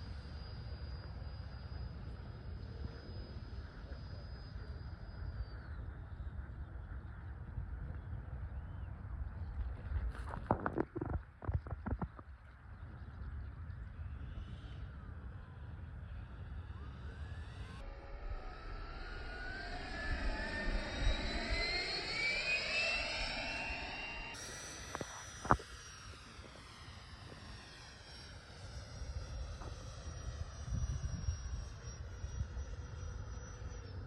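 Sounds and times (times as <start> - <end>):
model jet fan whine: 0.0 - 11.2, 13.0 - 34.0
low rumble: 15.4 - 28.2.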